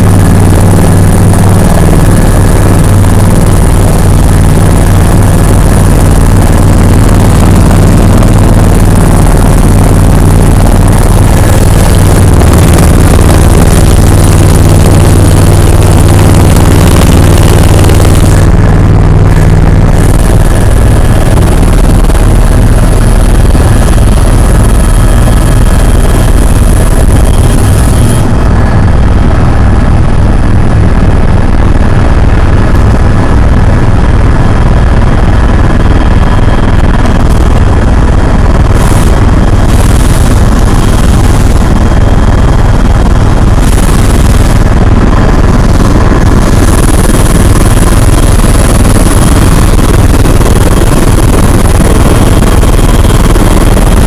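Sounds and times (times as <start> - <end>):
helicopter rotor drone: 0.0 - 54.0
thin steady whine: 0.0 - 54.0.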